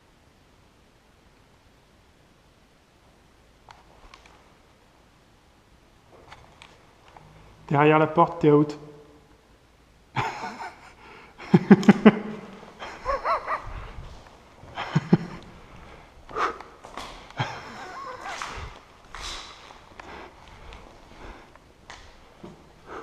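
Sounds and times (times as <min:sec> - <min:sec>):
person breathing hard and sniffing: 0:10.8 - 0:11.4, 0:12.8 - 0:23.0.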